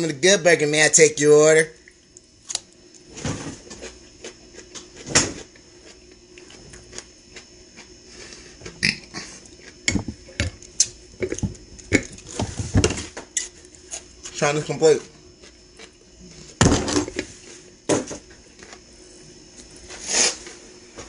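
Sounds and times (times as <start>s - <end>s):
crunching and wet chewing: 1.8s - 12.3s, 15.2s - 16.5s.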